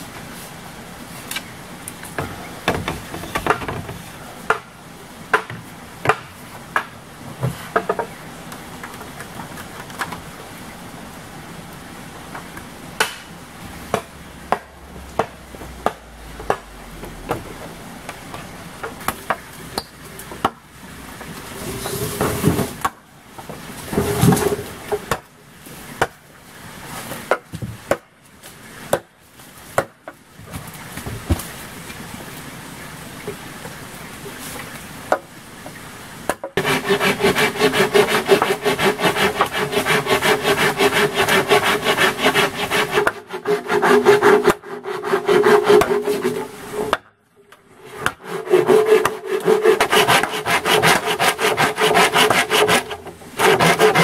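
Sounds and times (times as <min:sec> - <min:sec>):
scraping: 0:21.4 - 0:22.8, 0:36.6 - 0:47.0.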